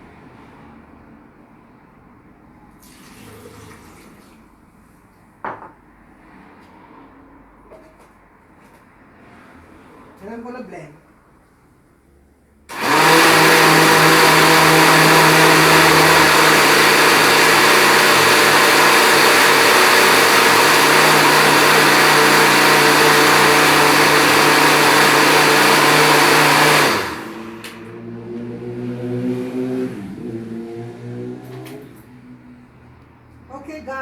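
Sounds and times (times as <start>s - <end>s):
blender click: 12.7s - 28.0s
blender motor running: 12.7s - 32.1s.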